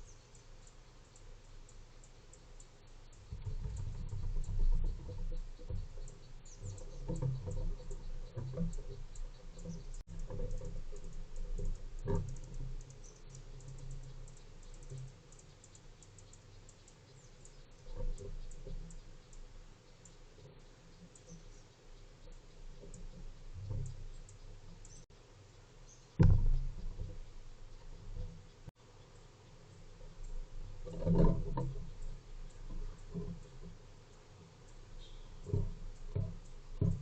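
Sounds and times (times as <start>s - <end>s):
animals pecking and tapping: 0.0s - 37.0s
dull low knocks: 2.4s - 15.2s, 26.1s - 28.8s, 34.7s - 37.0s.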